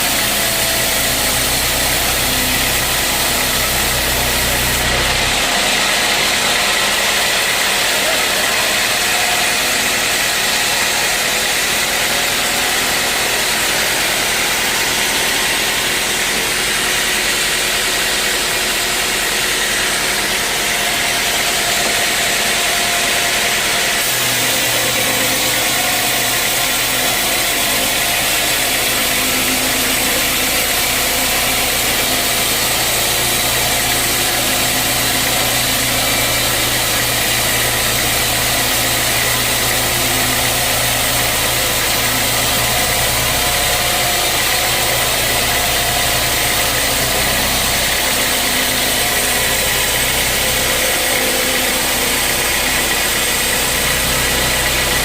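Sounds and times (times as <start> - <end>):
sawmill machinery running: 0.0 - 55.0
deeper hum: 11.3 - 55.0.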